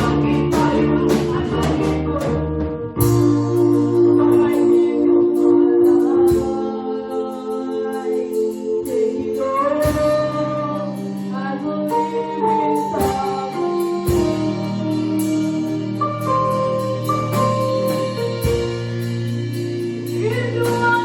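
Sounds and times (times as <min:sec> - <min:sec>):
choir singing gospel: 0:00.0 - 0:21.0
instrumental accompaniment with bass: 0:00.0 - 0:21.0.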